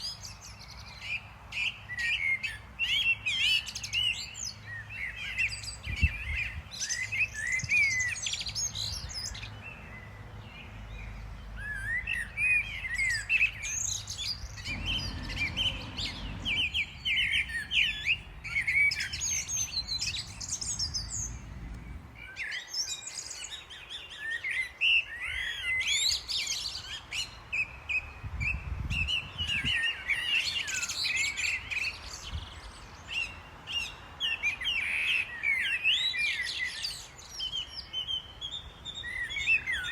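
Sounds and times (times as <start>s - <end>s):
songbirds chirping and twittering: 0.0s - 39.9s
low rumble: 14.6s - 22.3s.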